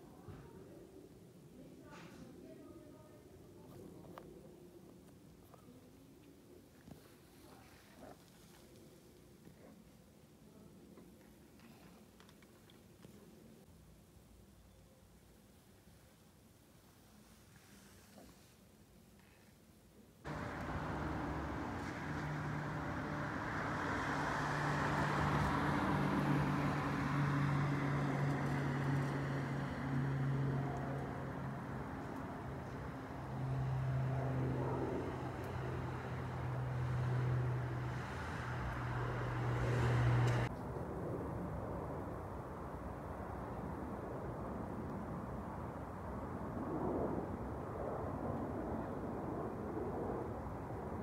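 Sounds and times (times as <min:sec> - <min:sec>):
broad rushing noise: 0:20.3 - 0:40.5
engine drone: 0:20.3 - 0:40.5.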